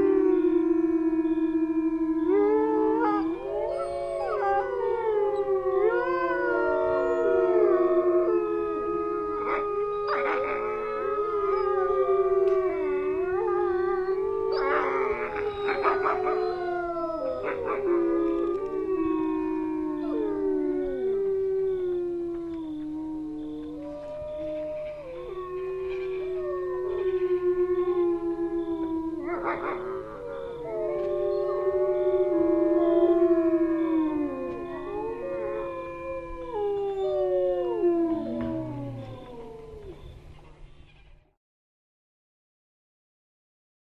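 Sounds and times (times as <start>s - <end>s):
wolves howling: 0.0s - 40.7s
wolves yipping: 9.4s - 11.8s, 13.9s - 19.2s, 28.9s - 31.8s, 37.7s - 41.1s.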